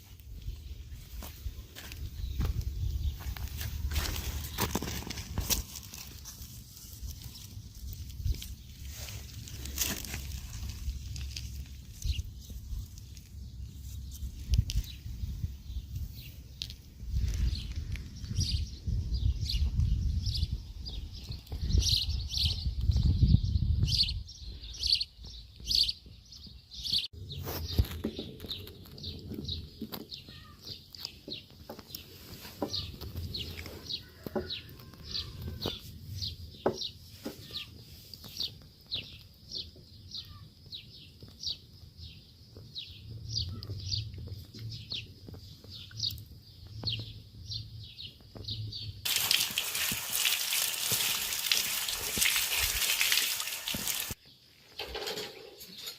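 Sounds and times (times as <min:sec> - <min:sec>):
bird chirping: 0:17.4 - 0:49.0
running water: 0:49.1 - 0:54.2.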